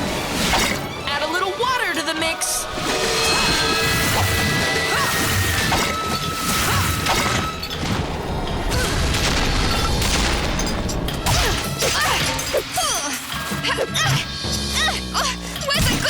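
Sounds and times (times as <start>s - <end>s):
crash and impact effects: 2.7s - 10.9s
cartoon background music: 11.2s - 16.0s.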